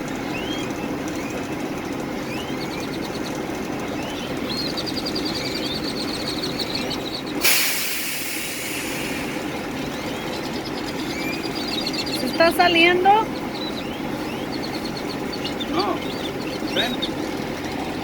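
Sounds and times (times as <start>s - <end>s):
diesel bus engine idling: 0.0s - 18.0s
compressed air hissing: 7.4s - 9.7s.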